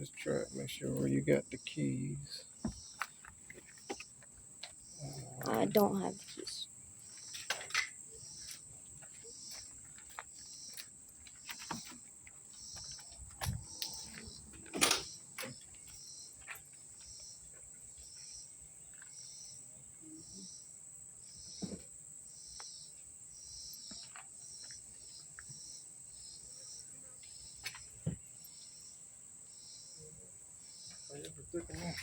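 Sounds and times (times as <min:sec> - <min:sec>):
insects chirping: 0:00.0 - 0:32.0
handling clicks and knocks: 0:02.6 - 0:04.8, 0:12.8 - 0:16.7.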